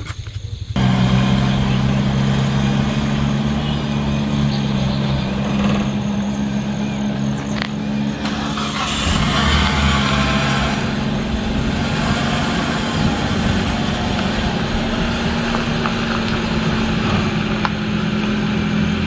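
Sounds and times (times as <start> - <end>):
car engine humming: 0.4 - 19.0.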